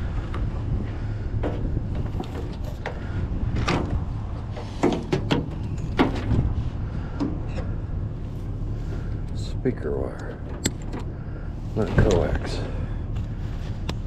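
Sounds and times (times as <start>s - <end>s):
steady low rumble: 0.0s - 14.0s
scrap metal knocks and clatters: 1.4s - 6.6s.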